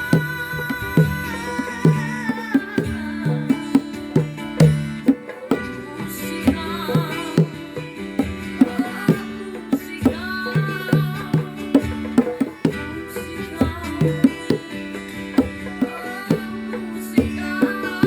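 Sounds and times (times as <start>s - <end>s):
bongos struck: 0.0s - 18.0s
person singing folk song: 0.0s - 18.0s.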